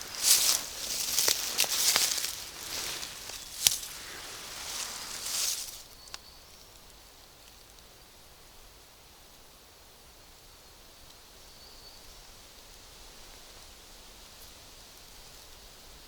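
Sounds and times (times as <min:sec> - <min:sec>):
sharp snaps of plants: 0:00.0 - 0:06.2
rustling of undergrowth: 0:00.0 - 0:07.8.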